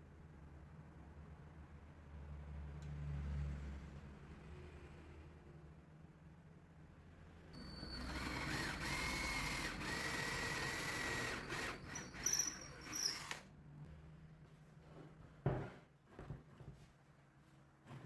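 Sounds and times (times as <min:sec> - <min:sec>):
electric drill whining: 0:07.6 - 0:13.4
short high squeals: 0:07.6 - 0:13.4.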